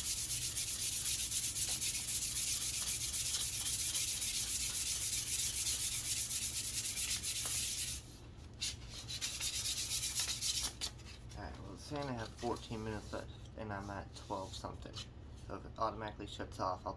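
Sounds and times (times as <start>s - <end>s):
sandpaper rubbing wood: 0.0s - 10.9s.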